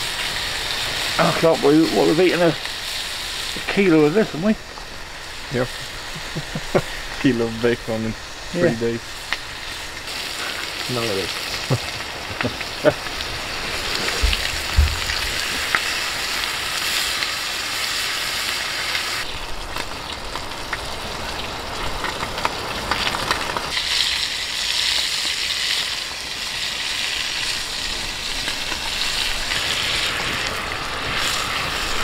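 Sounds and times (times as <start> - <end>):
meat sizzling in a pan: 0.0 - 32.0
dull knocks: 14.2 - 15.5.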